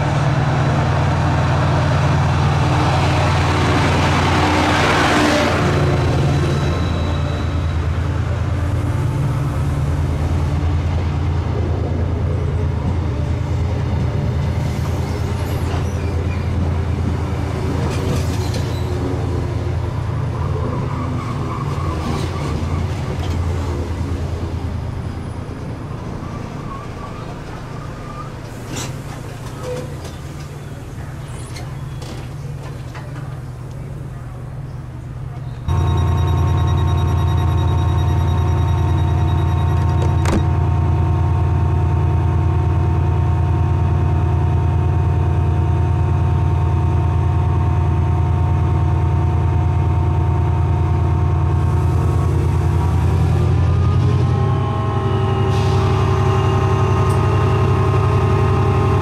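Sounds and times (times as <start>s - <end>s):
train rumbling into platform: 0.0s - 59.0s
wheel and brake squeals: 6.3s - 8.0s, 14.8s - 16.6s, 18.1s - 19.0s, 26.2s - 32.4s.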